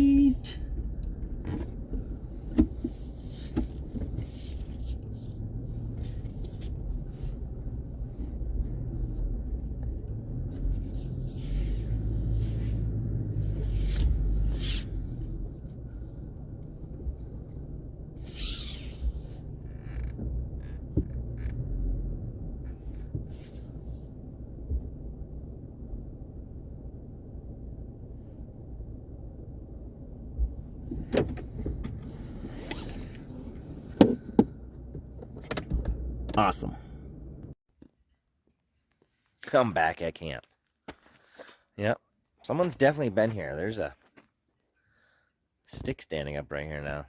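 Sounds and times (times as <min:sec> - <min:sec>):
truck engine and road rumble: 0:00.0 - 0:47.0
knocks and creaks from bumps: 0:00.8 - 0:06.7, 0:19.1 - 0:22.0, 0:22.6 - 0:23.4, 0:30.4 - 0:36.4.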